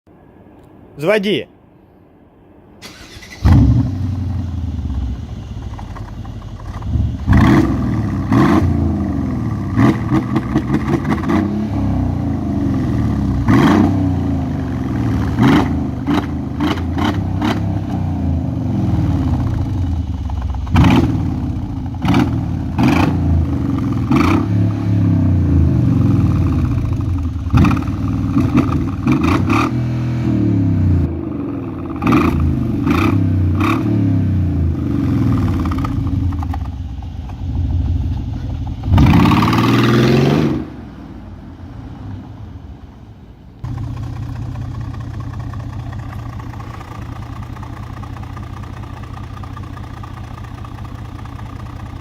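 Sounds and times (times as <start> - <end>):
car engine starting: 2.7 - 52.0
engine idling: 2.8 - 11.3, 14.4 - 24.5, 25.3 - 29.6, 34.5 - 39.9, 43.6 - 52.0
engine throttle blips: 2.8 - 41.2, 43.6 - 52.0.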